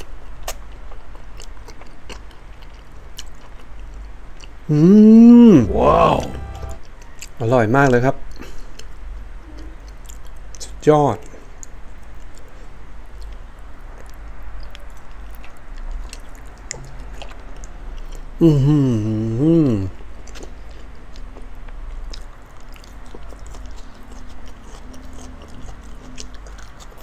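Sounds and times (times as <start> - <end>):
wet chewing: 0.0 - 4.7, 9.6 - 10.6, 11.5 - 18.4, 19.9 - 27.0
person humming mmm: 4.7 - 6.8, 18.4 - 20.0.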